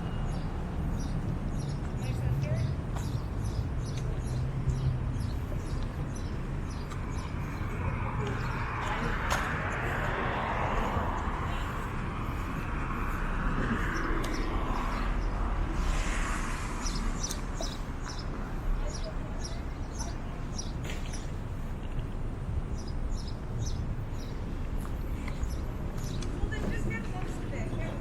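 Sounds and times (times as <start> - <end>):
crowd voices chattering: 1.8 - 22.8.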